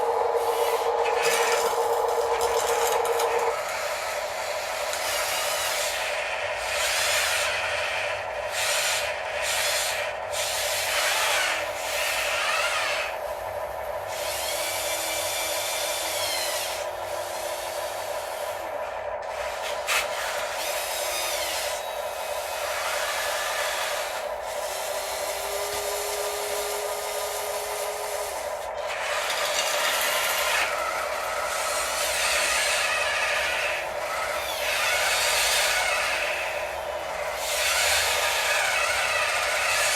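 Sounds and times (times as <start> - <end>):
scraping and grinding: 0.0 - 3.9, 24.8 - 33.9
motor whines rising and falling: 0.0 - 7.3, 22.5 - 39.9
steady motor whine: 0.0 - 39.9.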